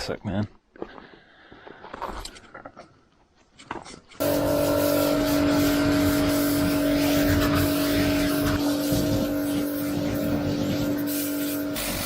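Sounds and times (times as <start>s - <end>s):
machine humming and hissing: 4.2s - 12.0s.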